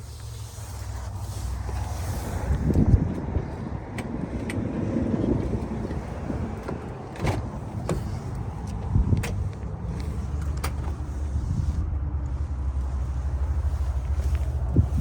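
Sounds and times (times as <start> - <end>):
clicks and knocks of van fittings: 5.3 - 9.7.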